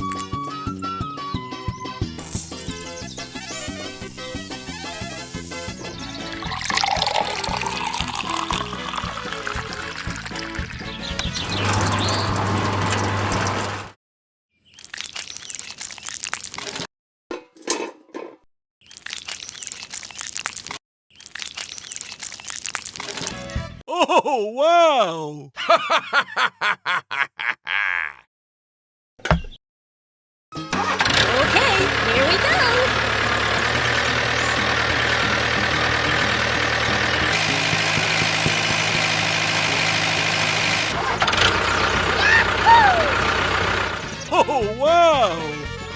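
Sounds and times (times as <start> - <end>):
vehicle engine running: 2.3 - 10.2, 11.1 - 13.9, 30.6 - 44.3
gritty crunching and crackling: 14.8 - 16.9, 18.9 - 23.4.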